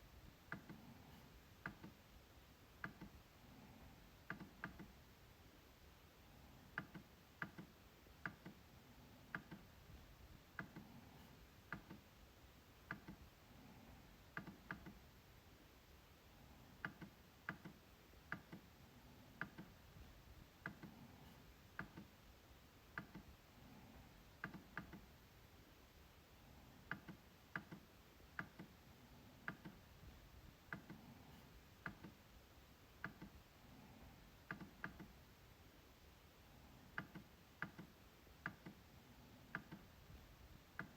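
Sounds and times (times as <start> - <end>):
trackpad clicks: 1.6 - 2.0, 2.8 - 3.2, 4.3 - 5.0, 6.7 - 8.6, 9.3 - 9.7, 11.7 - 12.0, 12.8 - 13.2, 14.3 - 15.0, 16.8 - 18.7, 19.4 - 19.8, 20.6 - 22.1, 24.4 - 25.1, 26.9 - 28.8, 29.4 - 29.8, 30.7 - 32.2, 33.0 - 33.4, 34.4 - 35.2, 37.0 - 38.8, 39.5 - 40.0.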